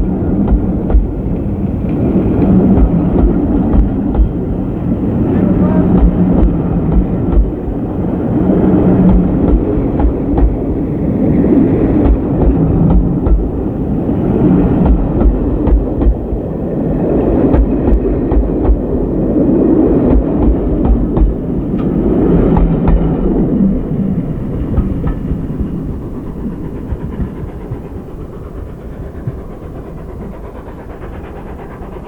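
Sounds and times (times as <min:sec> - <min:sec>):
steam train rumbling past: 0:00.0 - 0:32.0
wheels clicking over rail joints: 0:00.0 - 0:32.0.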